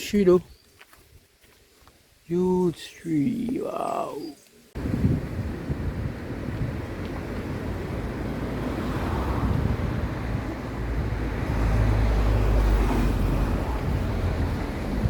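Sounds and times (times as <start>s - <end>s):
wind buffeting microphone: 4.8s - 15.0s.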